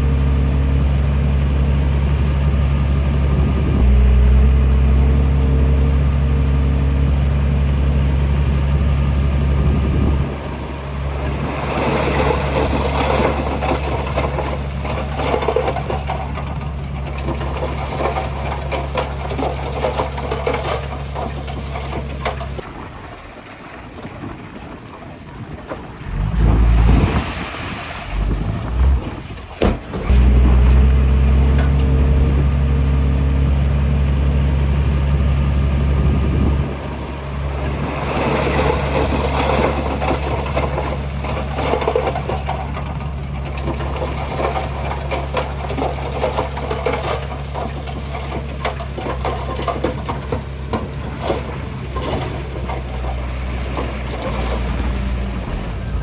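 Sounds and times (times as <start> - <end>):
diesel machine engine running: 0.0 - 23.2, 24.9 - 56.0
stone and earth clattering scraping: 10.9 - 32.4, 37.4 - 56.0.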